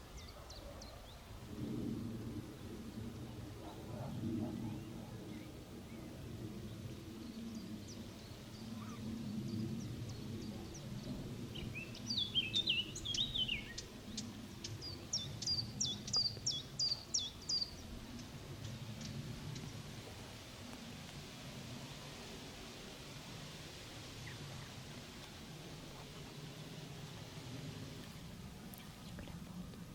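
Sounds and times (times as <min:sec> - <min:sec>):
small birds singing: 0:00.0 - 0:01.3, 0:04.0 - 0:19.8
low background rumble: 0:01.4 - 0:29.9.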